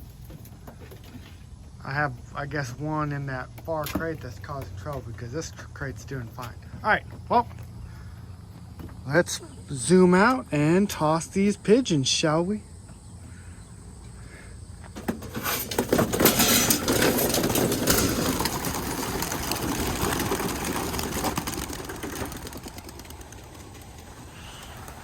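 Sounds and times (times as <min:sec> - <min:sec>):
pigeon wingbeats clattering: 0:14.9 - 0:25.0.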